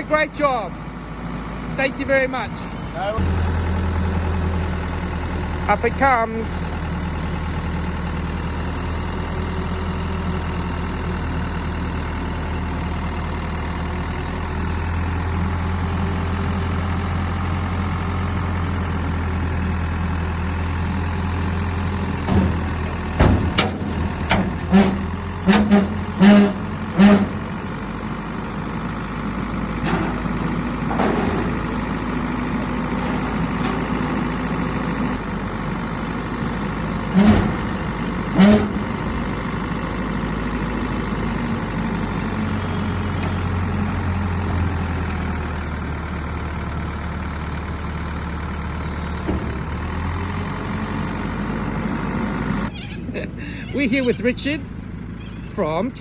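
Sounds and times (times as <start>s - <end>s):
diesel truck engine running: 0.0s - 56.0s
hydraulic lift drone: 21.8s - 40.3s
metal knocks and clanks: 22.1s - 27.7s, 29.7s - 34.8s, 37.0s - 39.5s.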